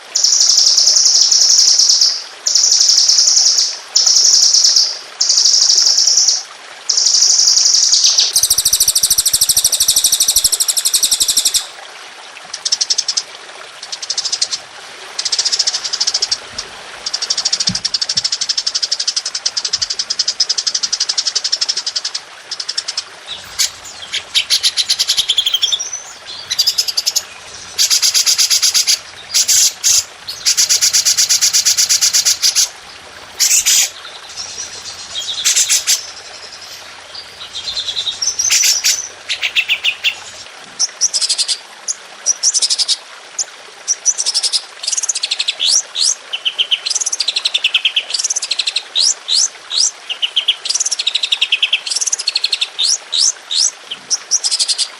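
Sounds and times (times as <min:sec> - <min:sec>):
songbirds singing rapid trills: 0:22.6 - 0:40.5.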